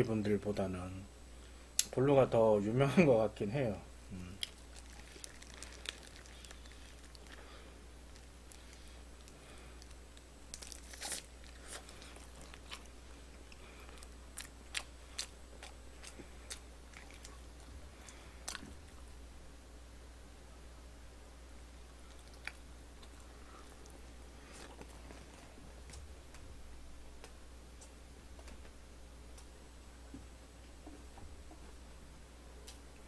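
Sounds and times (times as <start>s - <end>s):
chewing crispy fried chicken: 4.2s - 10.0s, 10.6s - 19.1s, 22.0s - 25.4s.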